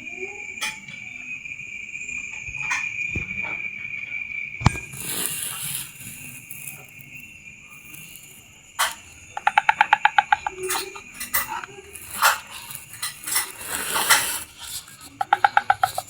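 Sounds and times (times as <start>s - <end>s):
sharp chirps and clicks: 4.6s - 16.0s
young birds chirping: 8.8s - 16.0s.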